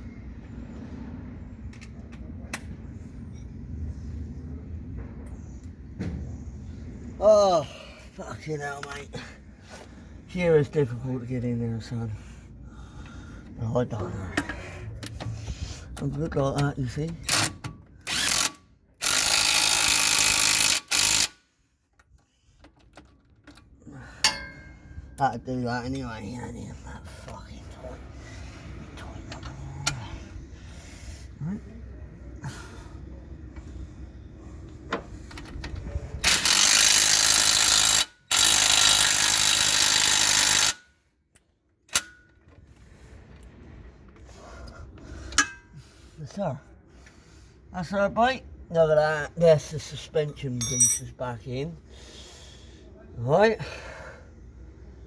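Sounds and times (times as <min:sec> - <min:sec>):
impact wrench running: 0:18.1 - 0:21.4, 0:36.2 - 0:40.8
impact wrench hammering: 0:50.6 - 0:51.0.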